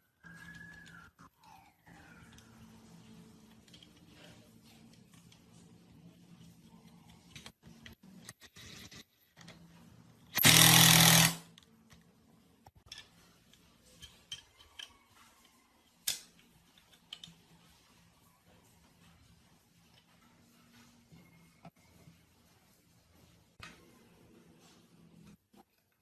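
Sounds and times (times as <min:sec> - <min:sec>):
power tool burst: 0:10.4 - 0:11.4
tools and metal parts clicking: 0:12.8 - 0:17.4.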